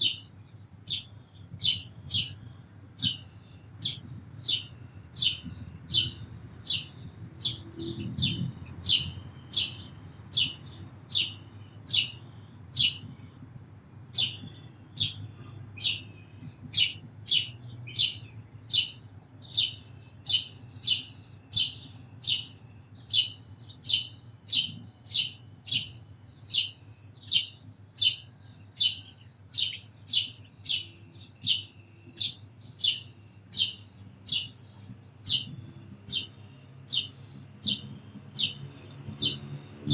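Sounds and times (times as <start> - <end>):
sparrow chirping: 0.0 - 39.9.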